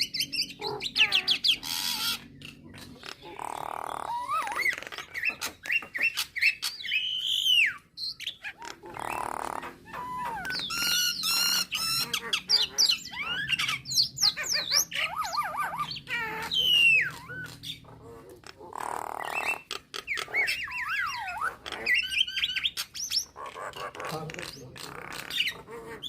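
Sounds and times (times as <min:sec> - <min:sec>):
myna whistling calls: 0:00.0 - 0:26.0.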